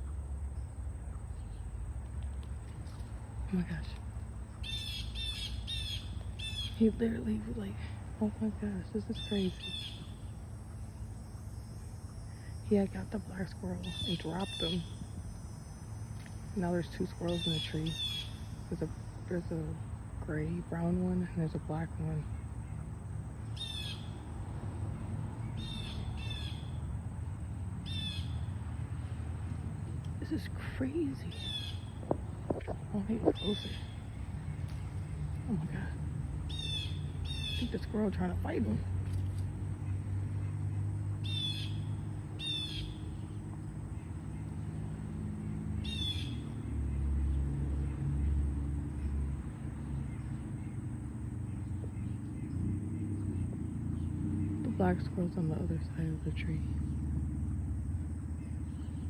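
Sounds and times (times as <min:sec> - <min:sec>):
steady low rumble: 0:00.0 - 0:59.0
bird chattering calls: 0:04.6 - 0:07.0, 0:09.0 - 0:10.3, 0:17.1 - 0:19.0, 0:27.9 - 0:28.4, 0:30.3 - 0:38.0, 0:41.2 - 0:43.3, 0:45.8 - 0:46.5.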